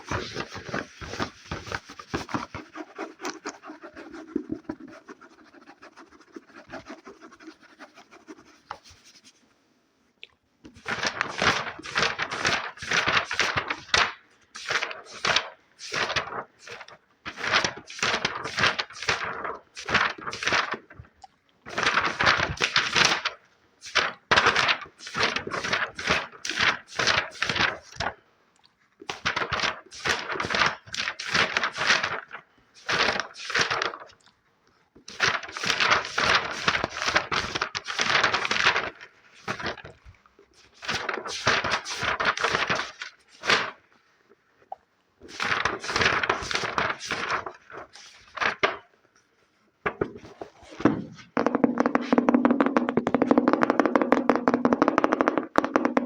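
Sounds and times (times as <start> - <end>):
fast scratching on a book: 0.0 - 9.4, 10.8 - 21.1, 21.7 - 28.1, 29.2 - 34.0, 35.1 - 43.8, 45.3 - 48.7.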